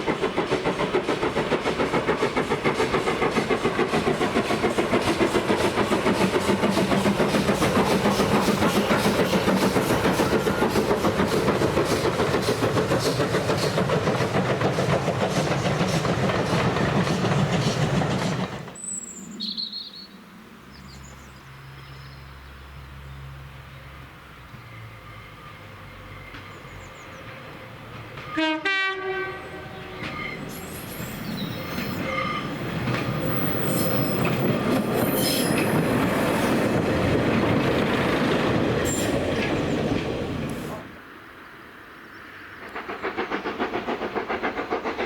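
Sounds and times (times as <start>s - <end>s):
steam train rhythmic beat: 0.0s - 18.8s, 42.7s - 45.0s.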